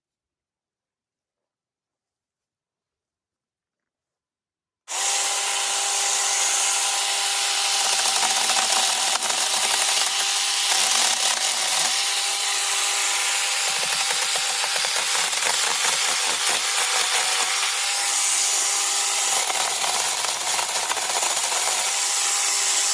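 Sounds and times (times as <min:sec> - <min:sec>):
chainsaw cutting branches: 0:04.9 - 0:22.9.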